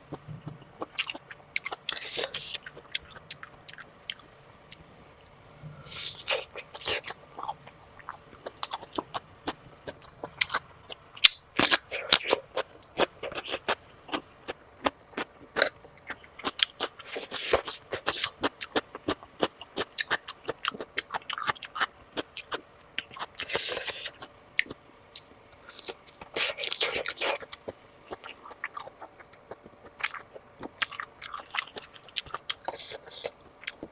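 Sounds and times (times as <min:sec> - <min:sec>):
chewing with wet mouth clicks: 0:00.1 - 0:04.3, 0:14.8 - 0:24.8, 0:25.7 - 0:33.9.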